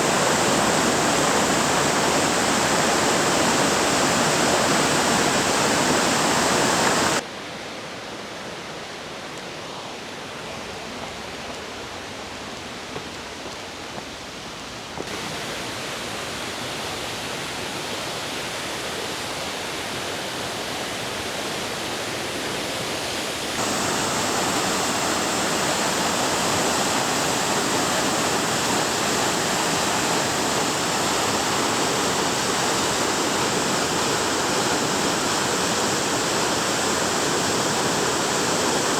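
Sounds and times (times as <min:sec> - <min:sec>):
waterfall rushing: 0:00.0 - 0:07.2, 0:15.1 - 0:38.9.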